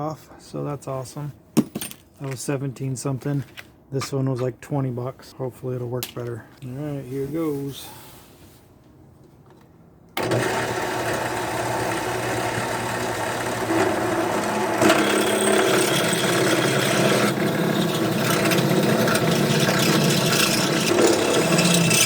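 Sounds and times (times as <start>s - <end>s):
drill bit cutting metal: 10.2s - 22.0s
drill press running: 10.2s - 22.0s.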